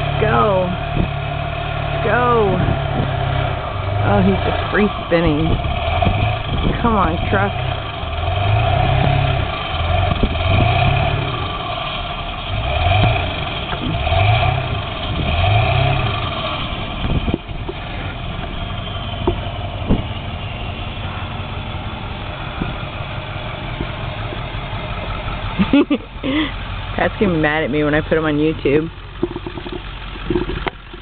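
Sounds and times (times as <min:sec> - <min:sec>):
wheels spinning on snow: 0:00.0 - 0:26.5
pickup engine revving: 0:00.0 - 0:31.0.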